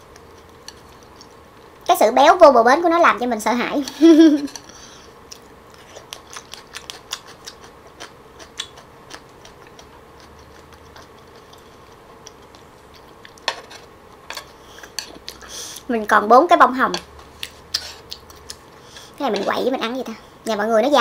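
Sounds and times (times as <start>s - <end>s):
wet chewing mouth clicks: 5.3s - 13.4s.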